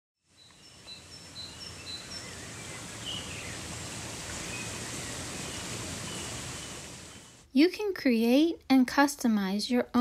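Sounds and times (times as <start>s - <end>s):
birds chirping: 0.3s - 7.5s
steady rushing noise: 0.8s - 7.4s.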